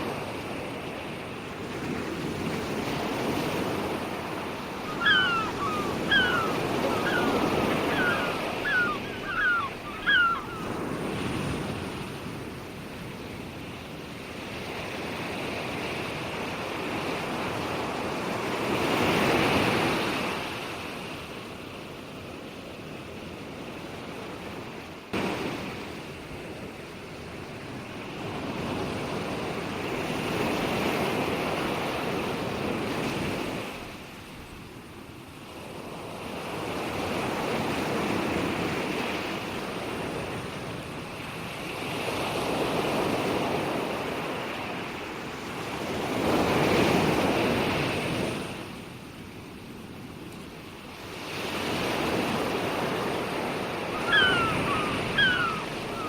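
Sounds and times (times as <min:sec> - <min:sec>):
ocean waves breaking: 0:00.0 - 0:21.2, 0:50.9 - 0:56.0.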